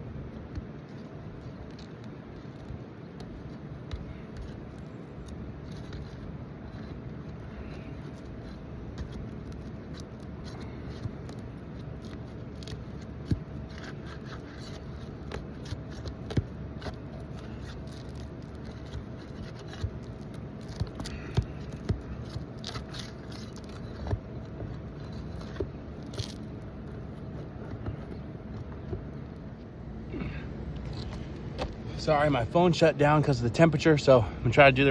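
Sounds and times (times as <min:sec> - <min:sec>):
steady low hum: 0:00.0 - 0:34.9
shingles scraping and clicking: 0:00.8 - 0:29.7.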